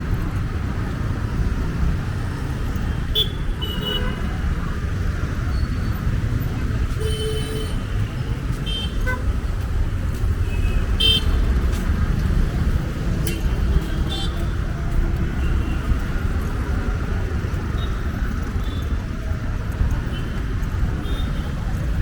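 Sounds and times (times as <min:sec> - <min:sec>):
city street traffic: 0:00.0 - 0:22.0.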